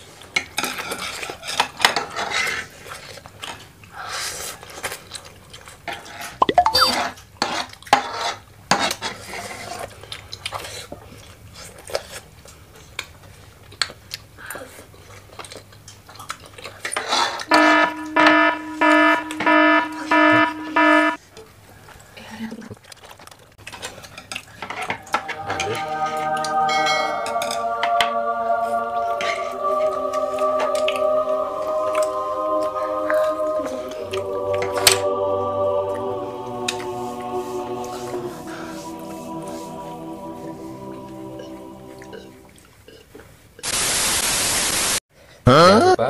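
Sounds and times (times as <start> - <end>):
alarm beeping: 17.5 - 21.2.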